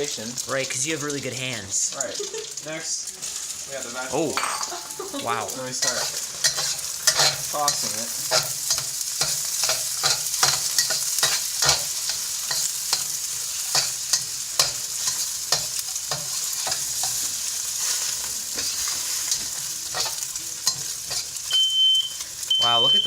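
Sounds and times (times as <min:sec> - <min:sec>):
food sizzling in hot oil: 0:00.0 - 0:23.0
spatula scraping a wok: 0:05.6 - 0:22.5.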